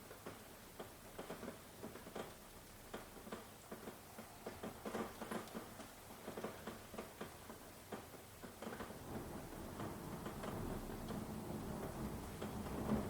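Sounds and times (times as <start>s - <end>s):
rain hissing: 8.9s - 13.0s.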